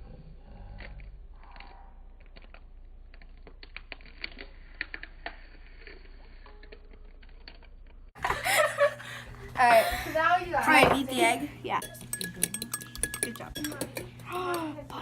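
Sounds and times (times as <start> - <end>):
kitchen utensils clicking: 10.7 - 15.0.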